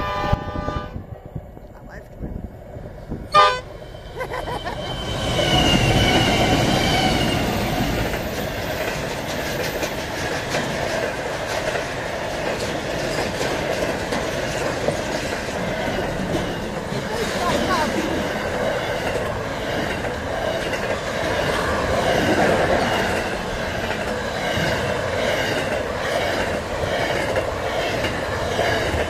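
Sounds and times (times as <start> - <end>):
train horn blast: 0.0 - 1.1, 3.3 - 3.8
diesel locomotives passing: 0.0 - 29.0
wagons rumbling over rail joints: 3.0 - 29.0.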